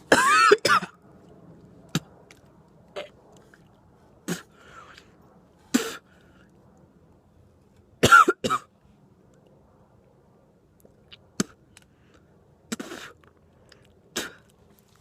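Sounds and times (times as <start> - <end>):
person coughing and gagging: 0.1 - 1.0, 8.0 - 8.7.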